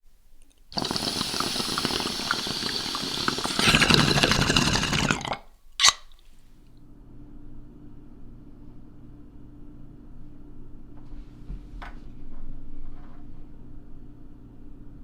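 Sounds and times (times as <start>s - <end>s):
rushing crackling water-like noise: 0.7s - 5.4s.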